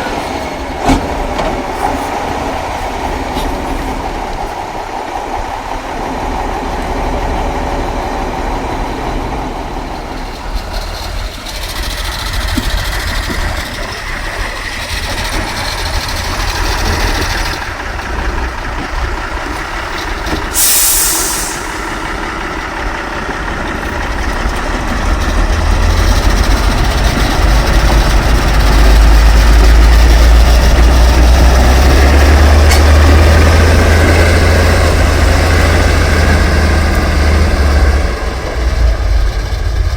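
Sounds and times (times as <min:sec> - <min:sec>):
truck diesel engine running: 0:00.0 - 0:39.9
hiss of air: 0:20.4 - 0:22.5.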